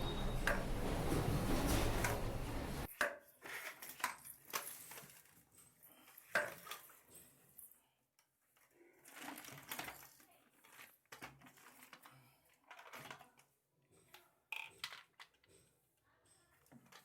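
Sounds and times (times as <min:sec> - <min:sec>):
plastic parts clicking and rustling: 0:03.5 - 0:05.4, 0:09.0 - 0:13.5, 0:14.1 - 0:15.5.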